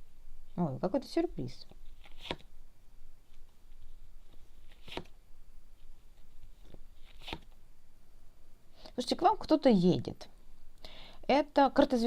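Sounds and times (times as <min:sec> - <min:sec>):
cards tapping and rustling: 0:01.9 - 0:02.5, 0:03.7 - 0:05.2, 0:06.6 - 0:07.6.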